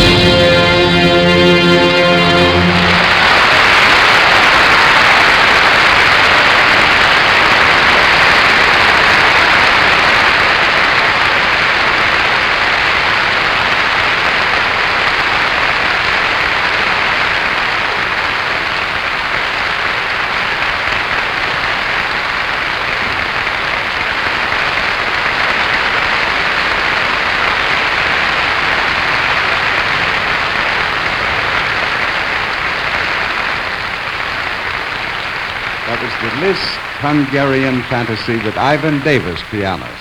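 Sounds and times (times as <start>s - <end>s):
audience applauding: 0.0s - 40.0s.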